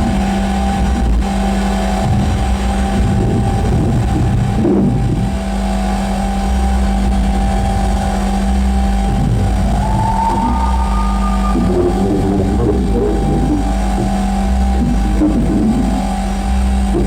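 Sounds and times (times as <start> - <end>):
electronic drone: 0.0 - 17.0
tone sliding up in pitch: 9.1 - 14.4.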